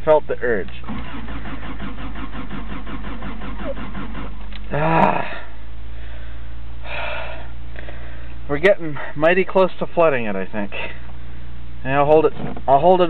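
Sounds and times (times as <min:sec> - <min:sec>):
starter cranking engine: 0:00.7 - 0:04.7.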